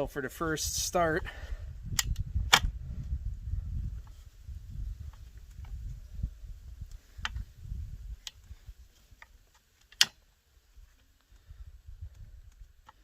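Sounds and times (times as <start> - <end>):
sharp metallic click: 1.9 - 2.7, 9.2 - 10.2.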